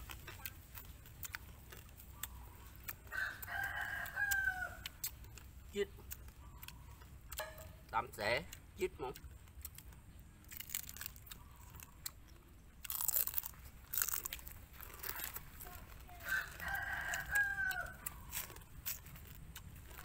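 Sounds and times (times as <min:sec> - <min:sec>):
chewing crunchy crab shells: 0:00.0 - 0:20.0
rooster crowing: 0:03.0 - 0:05.0, 0:16.2 - 0:18.4.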